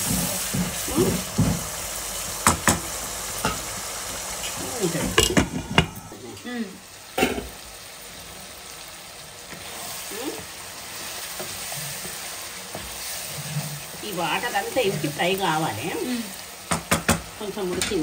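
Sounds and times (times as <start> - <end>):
chicken sizzling in gravy: 0.0 - 18.0
wooden spatula stirring: 10.4 - 16.0.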